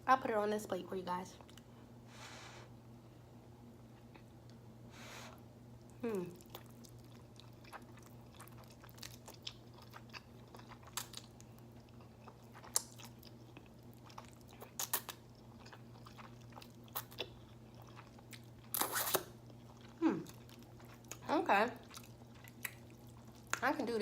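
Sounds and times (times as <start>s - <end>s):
wet chewing: 5.9s - 23.6s.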